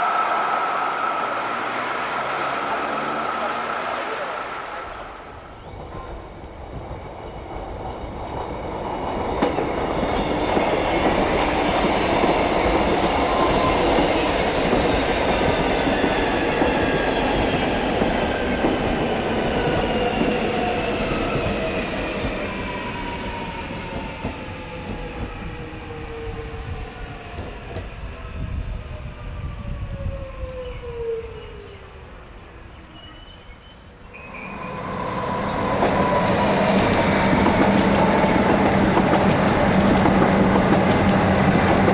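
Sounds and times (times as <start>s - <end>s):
electric train running on rails: 0.0s - 29.9s, 33.4s - 41.9s.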